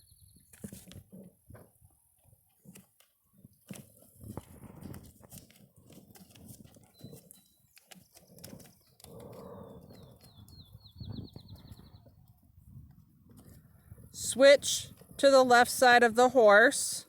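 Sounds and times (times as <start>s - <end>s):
horse hooves walking: 0.6s - 13.8s.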